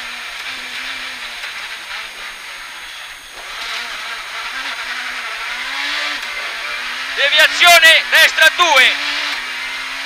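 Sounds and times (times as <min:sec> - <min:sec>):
rally car engine from inside cabin: 0:00.0 - 0:10.0
road and tyre noise: 0:00.0 - 0:10.0.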